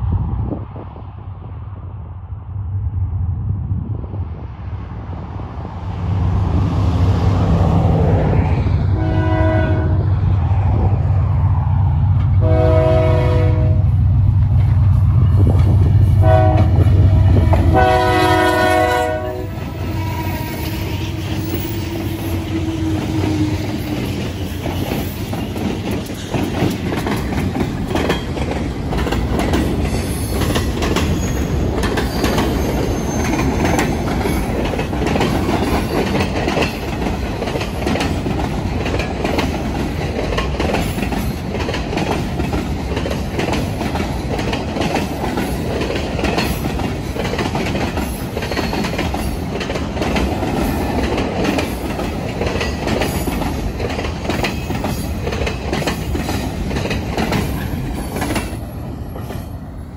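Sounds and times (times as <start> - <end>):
freight cars rumbling on rails: 0.0 - 59.9
wheels clicking over rail joints: 22.4 - 59.4
high wheel squeal: 30.0 - 33.5.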